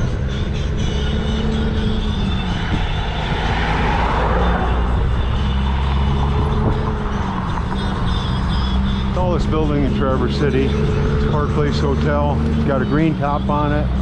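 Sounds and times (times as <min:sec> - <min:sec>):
motor vehicle passing: 0:00.0 - 0:14.0
traffic rumble: 0:00.0 - 0:14.0
wind on microphone: 0:01.8 - 0:08.1.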